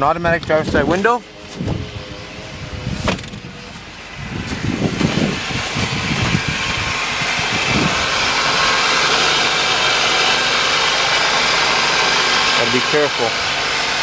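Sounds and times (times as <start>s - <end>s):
car engine idling: 0.0s - 14.0s
engine bay rushing with fan hiss: 0.0s - 14.0s
irregular low thumps: 1.6s - 8.2s.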